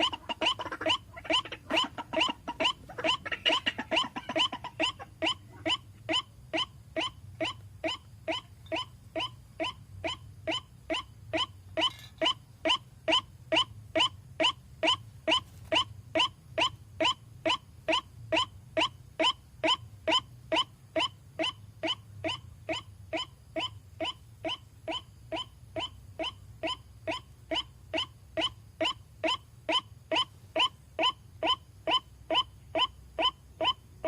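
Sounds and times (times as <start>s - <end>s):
waterhen calling: 0.0s - 16.3s
faint low hum: 0.0s - 34.0s.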